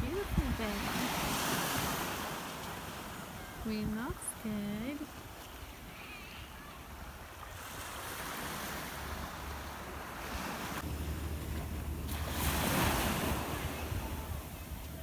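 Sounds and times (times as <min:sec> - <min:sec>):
wind rumble on microphone: 0:00.0 - 0:02.1, 0:09.9 - 0:15.0
sea waves washing onto beach: 0:00.0 - 0:15.0.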